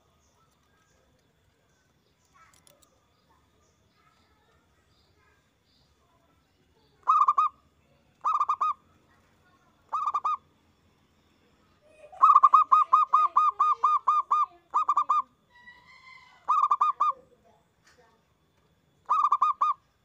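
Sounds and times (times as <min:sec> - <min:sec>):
dove cooing: 0:07.0 - 0:07.6, 0:08.2 - 0:08.8, 0:09.9 - 0:10.4, 0:12.0 - 0:17.3, 0:19.0 - 0:19.8.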